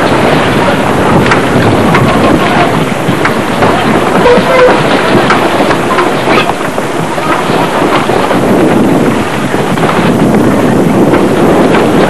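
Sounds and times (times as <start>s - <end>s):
strong wind on microphone: 0.0s - 12.0s.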